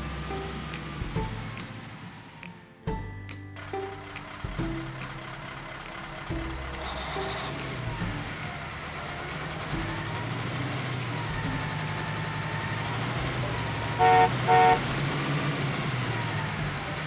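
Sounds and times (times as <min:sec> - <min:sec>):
vehicle engine running: 0:00.0 - 0:03.0, 0:03.6 - 0:17.0
horn honks: 0:11.9 - 0:15.8.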